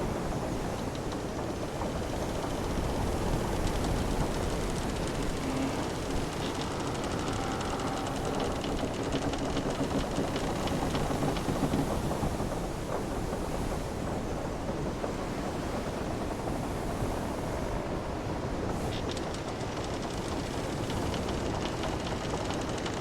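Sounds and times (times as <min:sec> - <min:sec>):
wind: 0:00.0 - 0:23.0
wooden ship timbers creaking: 0:00.4 - 0:11.6, 0:18.8 - 0:23.0.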